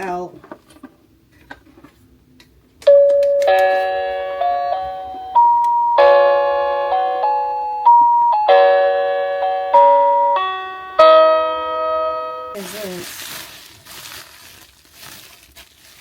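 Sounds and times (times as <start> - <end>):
music box chiming tune: 2.9 - 12.6.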